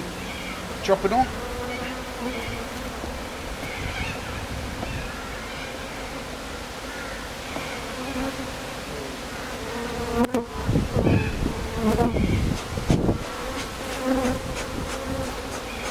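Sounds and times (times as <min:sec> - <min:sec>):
bees buzzing: 0:00.0 - 0:15.9
low bumps and rustles: 0:02.8 - 0:05.2.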